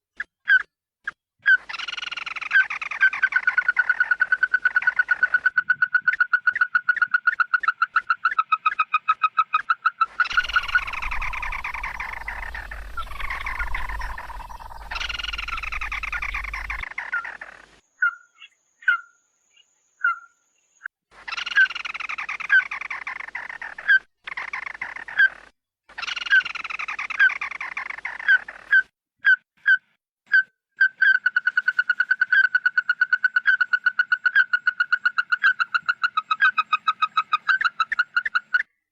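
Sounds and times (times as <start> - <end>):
harsh bird chattering: 10.1 - 17.6
bird trilling: 10.2 - 17.4.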